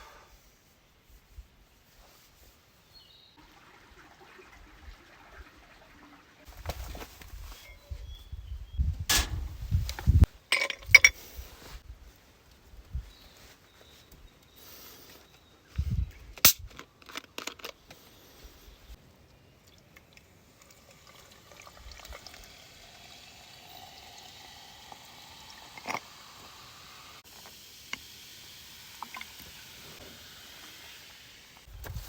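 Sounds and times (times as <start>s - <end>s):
liquid being poured: 3.4s - 6.4s, 20.0s - 27.2s, 28.0s - 31.4s.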